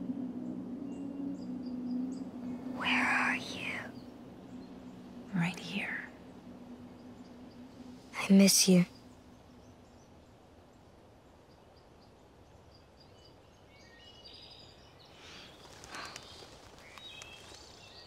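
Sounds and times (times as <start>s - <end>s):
faint bird calls: 0.8s - 9.9s, 14.0s - 18.0s
soft rustles: 15.3s - 18.0s.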